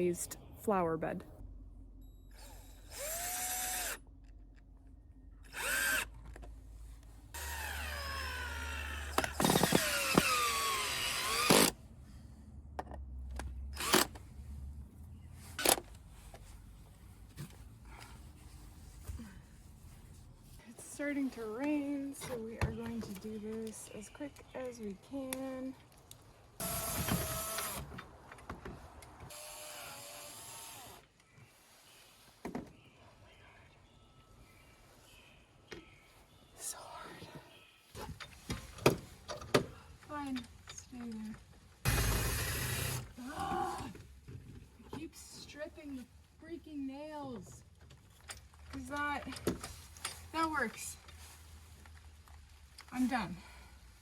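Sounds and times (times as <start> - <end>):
power drill driving screws into wood: 2.4 - 4.0, 5.5 - 6.1, 7.4 - 11.8, 13.8 - 14.2, 26.6 - 28.0, 29.3 - 31.0, 41.9 - 43.2.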